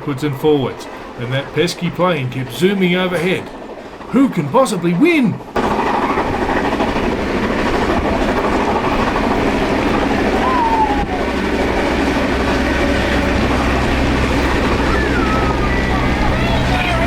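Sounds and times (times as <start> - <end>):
steam train wheels on rails: 0.0 - 17.0
brief falling tone: 10.3 - 17.0.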